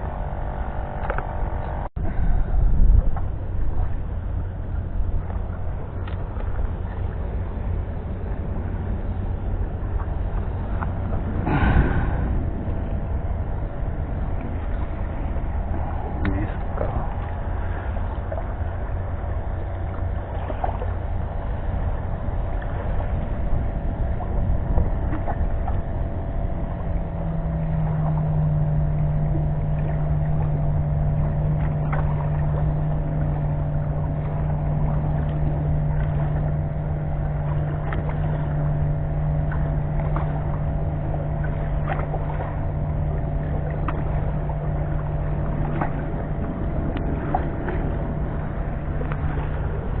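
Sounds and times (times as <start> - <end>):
low motor hum: 0.0 - 50.0
wind rumble on microphone: 0.0 - 50.0
faint clicks: 5.2 - 6.7.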